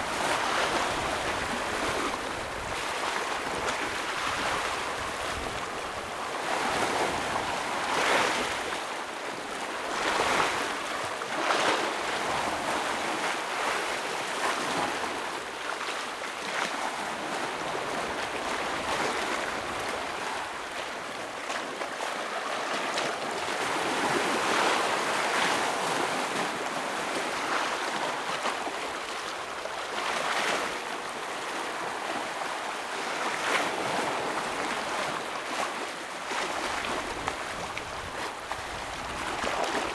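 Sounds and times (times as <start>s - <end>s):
ocean waves breaking on rocks: 0.0s - 8.8s, 29.9s - 39.9s.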